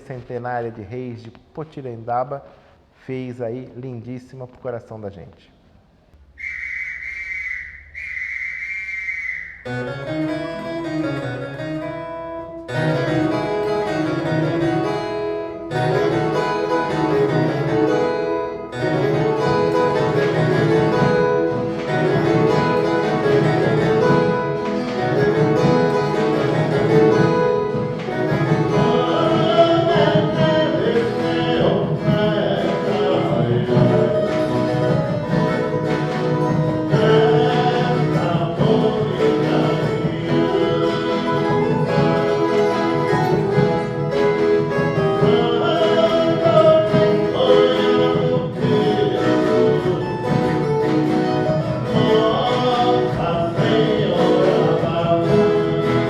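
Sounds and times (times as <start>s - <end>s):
shrill whistle blast: 6.2s - 9.8s
strummed guitar ensemble: 9.4s - 56.0s
voices singing: 18.9s - 56.0s.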